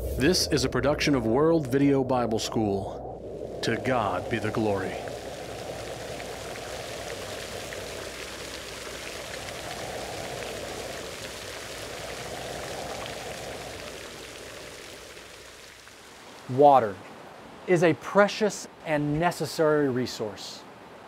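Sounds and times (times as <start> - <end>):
deep rushing rain: 0.0 - 18.0
steady rain hiss: 0.0 - 21.0
scattered raindrop ticks: 3.5 - 16.2.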